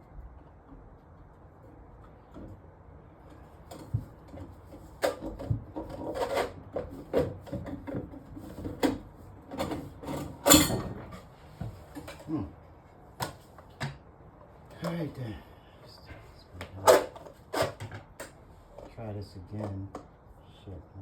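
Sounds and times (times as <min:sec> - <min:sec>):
plumbing parts and tools clattering: 0:03.2 - 0:12.3, 0:16.6 - 0:20.1
knocks and scrapes: 0:03.7 - 0:12.3.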